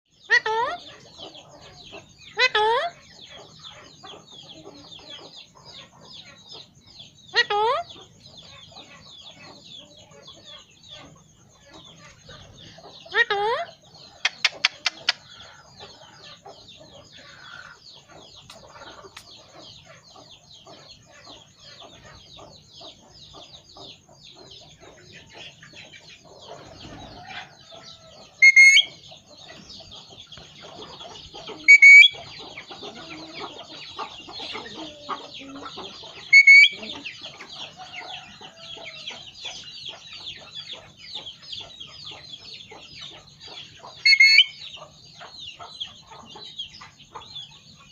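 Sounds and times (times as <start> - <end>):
birds chirping and chattering: 0.1 - 47.9
parrot shrill whistling calls: 28.4 - 29.0, 31.6 - 32.2, 36.3 - 36.8, 44.0 - 44.6.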